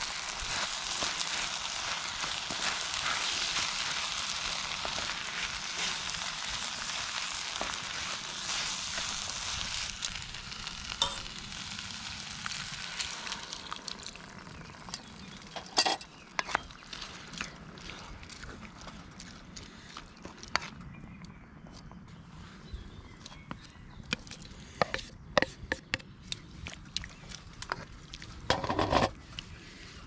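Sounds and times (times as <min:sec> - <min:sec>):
food sizzling in a pan: 0:00.0 - 0:17.3.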